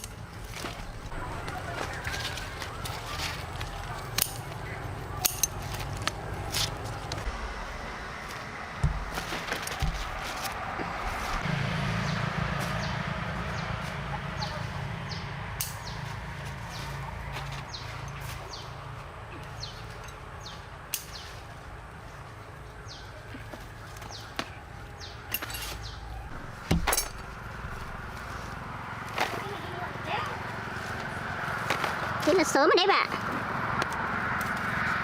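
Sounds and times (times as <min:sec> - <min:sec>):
low engine hum: 0:00.0 - 0:35.0
sharp knocks: 0:08.8 - 0:11.0, 0:26.3 - 0:27.4
bird chirping: 0:17.6 - 0:21.5, 0:22.1 - 0:28.5.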